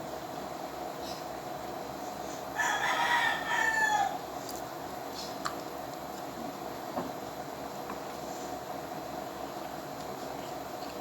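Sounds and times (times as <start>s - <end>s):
rooster crowing: 2.6s - 4.3s.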